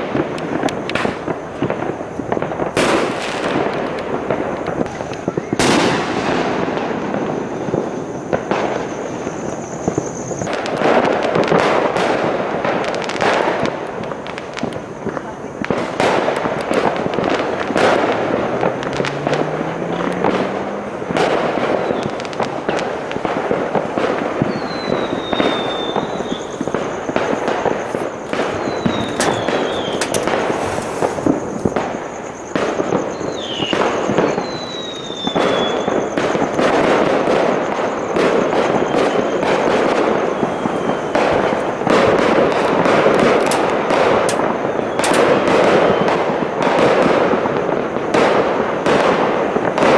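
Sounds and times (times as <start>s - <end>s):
fireworks crackling and banging: 0.0s - 49.9s
falling whistles: 4.9s - 11.7s, 16.8s - 22.8s, 24.4s - 46.3s.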